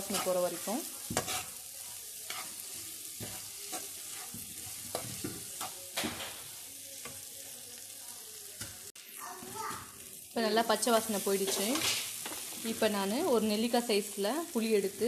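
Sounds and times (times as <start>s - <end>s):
spatula scraping pan: 0.0s - 7.2s
food sizzling in oil: 0.0s - 15.0s.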